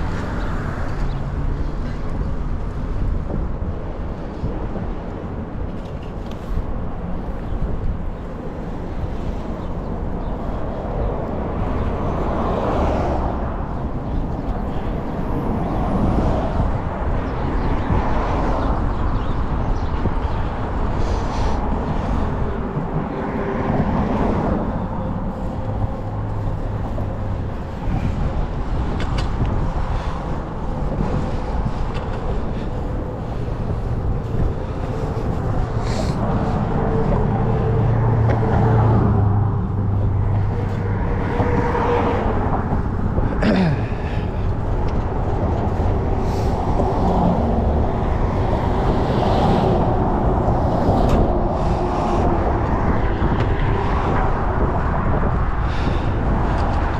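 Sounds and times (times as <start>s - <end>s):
cars passing: 0.0s - 56.9s
low traffic rumble: 0.0s - 56.9s
passing vehicle falling whine: 33.2s - 43.3s.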